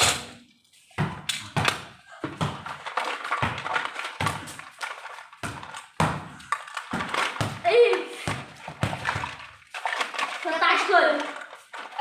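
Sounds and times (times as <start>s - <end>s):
taps and thuds with echo: 1.0s - 2.8s, 5.4s - 9.3s
ball hit by hand: 5.4s - 9.2s.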